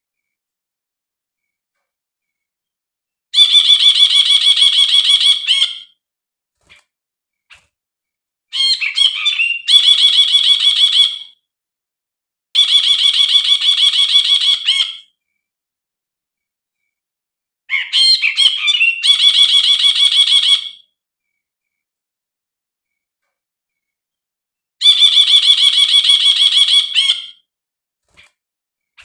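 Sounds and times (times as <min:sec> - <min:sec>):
bird song trill: 0:03.4 - 0:06.0, 0:08.5 - 0:11.5, 0:12.6 - 0:15.4, 0:17.7 - 0:21.8, 0:24.8 - 0:27.5.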